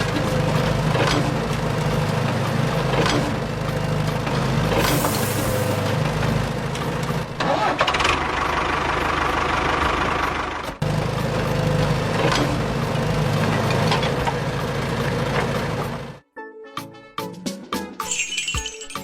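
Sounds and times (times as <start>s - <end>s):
small tractor engine running: 0.0s - 16.2s
music: 9.9s - 19.0s.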